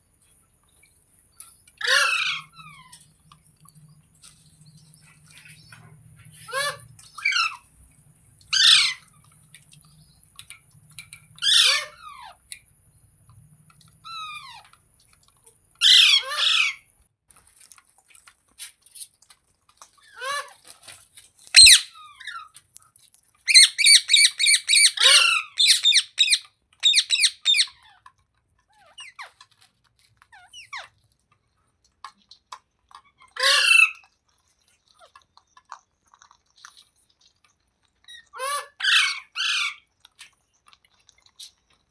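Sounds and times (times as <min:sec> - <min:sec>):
parrot squawking: 0:01.8 - 0:03.0, 0:06.3 - 0:07.7, 0:08.5 - 0:09.1, 0:11.4 - 0:12.4, 0:15.8 - 0:16.8, 0:21.5 - 0:22.5, 0:23.5 - 0:27.9, 0:33.3 - 0:34.0, 0:38.1 - 0:39.8.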